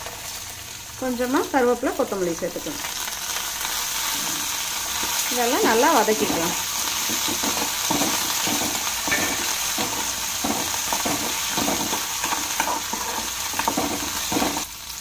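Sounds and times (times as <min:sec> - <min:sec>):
food sizzling in hot oil: 0:00.0 - 0:15.0
metal spoon scraping pan: 0:05.6 - 0:14.7.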